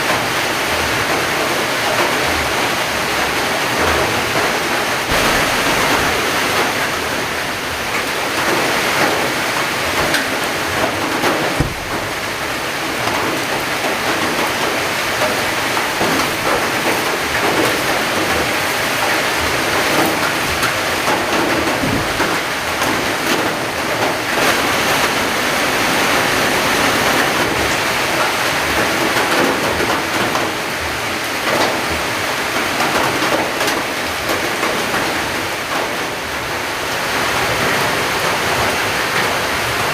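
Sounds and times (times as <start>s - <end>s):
heavy rain falling: 0.0s - 39.9s
dull low thumps: 5.1s - 7.7s, 11.6s - 12.1s.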